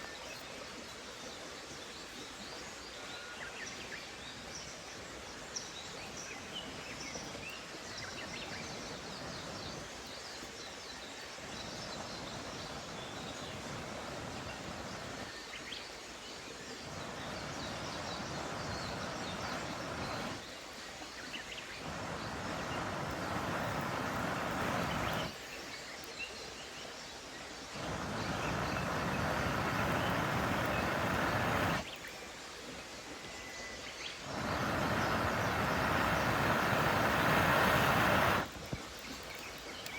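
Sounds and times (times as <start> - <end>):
small birds chirping: 5.6 - 32.4, 33.9 - 39.9
stream water flowing: 16.0 - 25.8, 27.4 - 33.2, 34.1 - 39.9
steady rushing background: 27.9 - 31.8.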